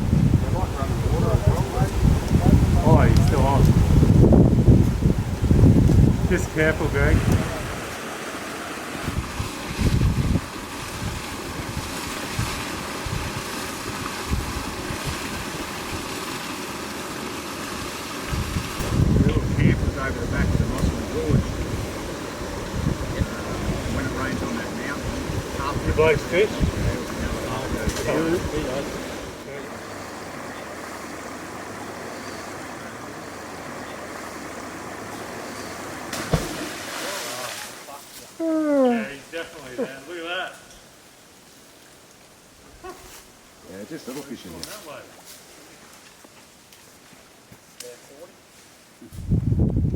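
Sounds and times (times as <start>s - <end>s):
wind rushing on microphone: 0.0s - 8.0s, 9.0s - 16.2s, 18.2s - 29.5s, 49.0s - 49.9s
water washing along hull: 0.0s - 38.0s
boat motor running: 18.3s - 36.6s.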